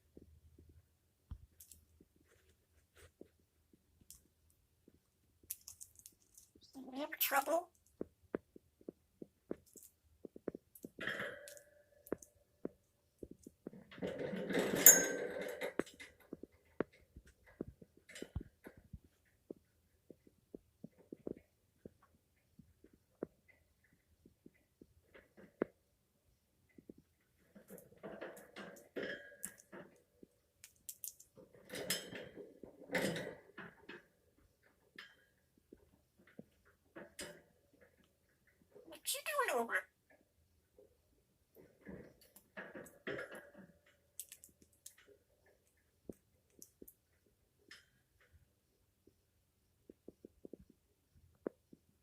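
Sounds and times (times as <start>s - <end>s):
parrot clicks and gurgling: 44.2s - 45.0s.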